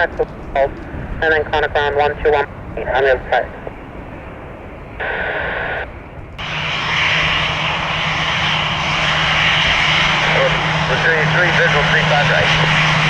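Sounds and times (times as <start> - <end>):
radio static burst: 0.0 - 3.6, 5.0 - 5.9
airliner engines running: 0.0 - 13.0
low hum: 0.0 - 13.0.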